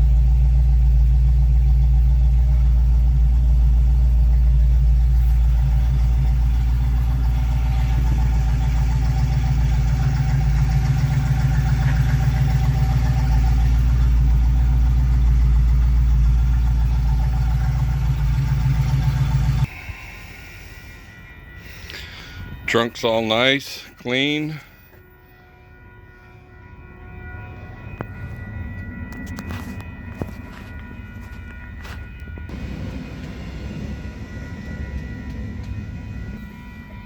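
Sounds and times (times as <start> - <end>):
car engine idling: 0.0 - 24.9, 28.1 - 37.0.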